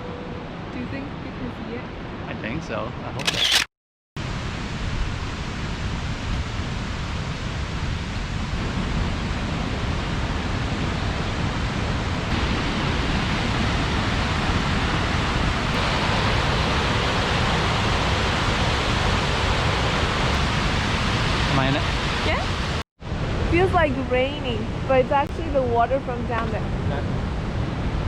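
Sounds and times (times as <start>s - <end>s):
waterfall rushing: 12.3s - 22.8s.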